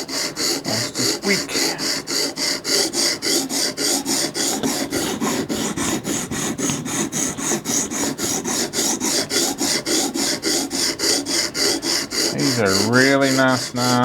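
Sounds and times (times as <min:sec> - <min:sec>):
sharpening stone rasping on knife: 0:00.0 - 0:14.0.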